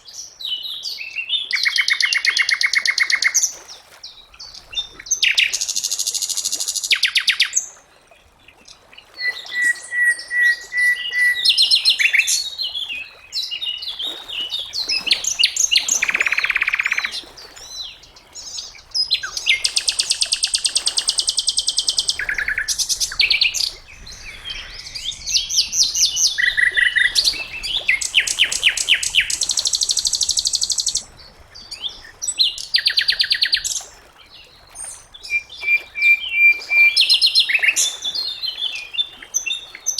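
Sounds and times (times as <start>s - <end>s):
bird whistled notes: 9.2s - 12.1s.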